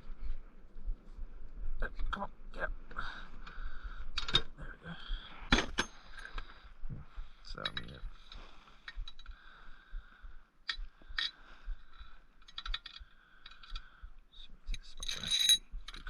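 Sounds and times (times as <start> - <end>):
metal parts clinking: 12.4 - 13.8, 14.8 - 16.0.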